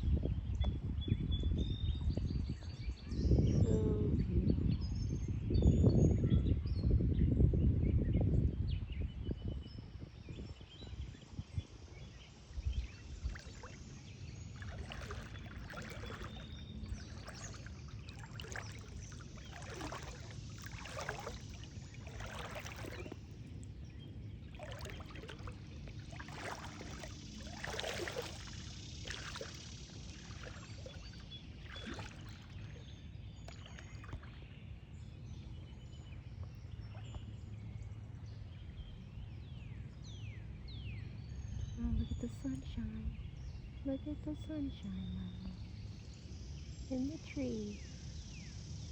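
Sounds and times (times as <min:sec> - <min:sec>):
low steady rumble: 0:11.3 - 0:48.9
water splashing from wading: 0:12.8 - 0:34.6.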